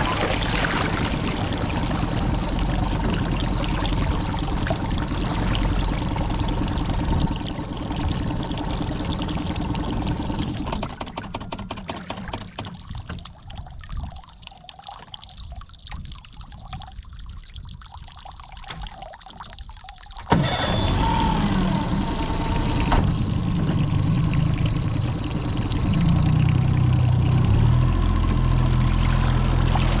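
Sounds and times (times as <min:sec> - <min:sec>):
outboard motor running: 0:00.0 - 0:13.3, 0:20.3 - 0:30.0
water pouring and splashing: 0:00.0 - 0:20.7, 0:21.3 - 0:30.0.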